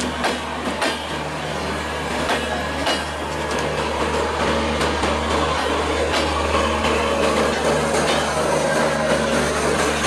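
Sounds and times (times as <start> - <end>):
train coaches rolling past: 0.0 - 10.0
wheels knocking over rail joints: 2.2 - 10.0.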